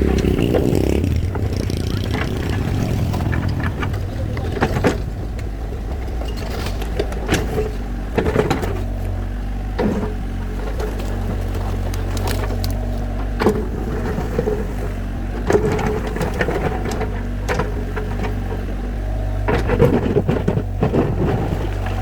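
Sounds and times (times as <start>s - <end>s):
bucket scraping and knocking stone: 0.0s - 8.7s
excavator engine running: 0.0s - 22.0s.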